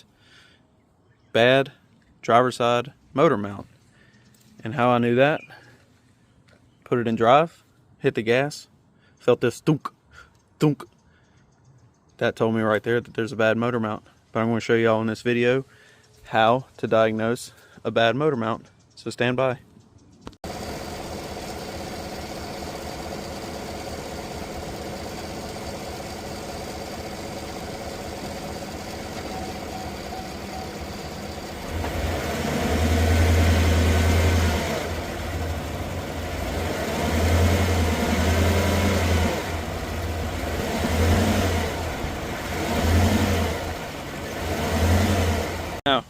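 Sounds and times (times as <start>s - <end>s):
car engine idling and revving: 20.2s - 45.8s.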